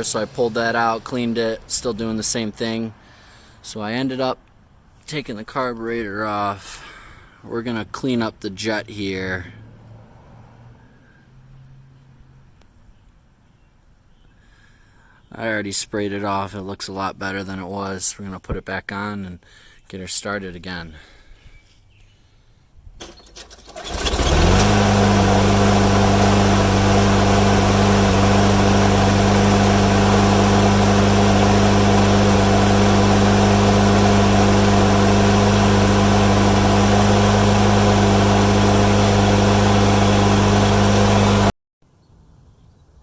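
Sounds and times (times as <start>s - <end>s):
lawn mower engine starting and running: 0.0s - 4.4s, 23.0s - 41.5s.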